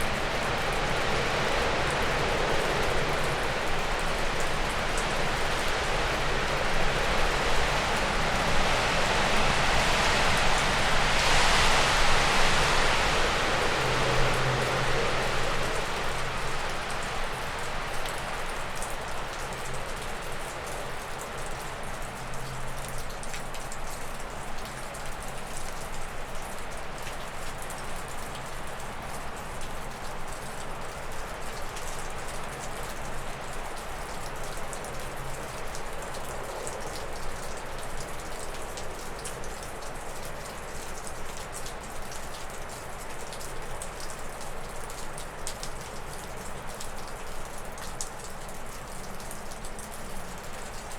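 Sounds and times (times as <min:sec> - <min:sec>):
wind through trees: 0:00.0 - 0:22.8
meltwater dripping off roof: 0:00.0 - 0:50.9.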